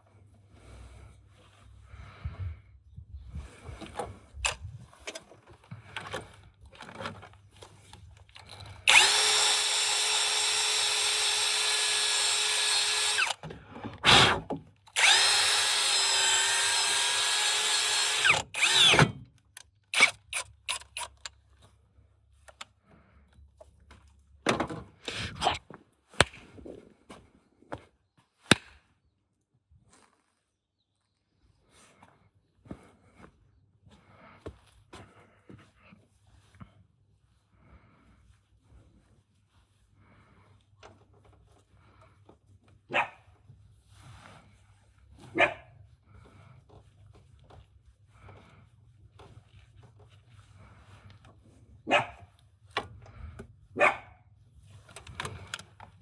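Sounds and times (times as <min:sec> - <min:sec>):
handheld power drill running: 0:08.4 - 0:13.4, 0:14.0 - 0:19.2, 0:19.9 - 0:21.3
tools and parts clicking: 0:17.2 - 0:21.4.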